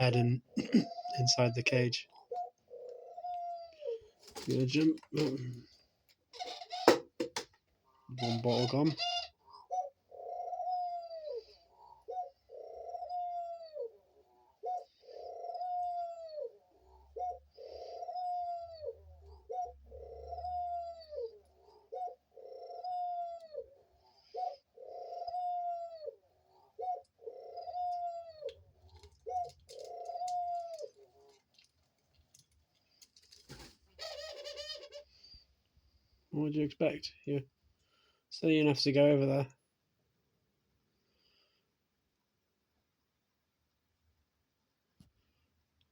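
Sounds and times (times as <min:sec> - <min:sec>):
dove cooing: 0:00.2 - 0:07.2, 0:08.1 - 0:31.6, 0:33.4 - 0:35.4.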